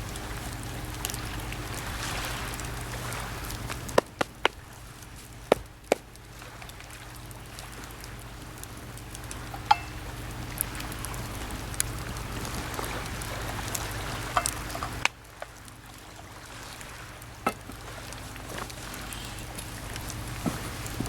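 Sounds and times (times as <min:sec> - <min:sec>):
campfire crackling and popping: 0:00.0 - 0:21.0
steady rushing hiss: 0:00.0 - 0:21.0.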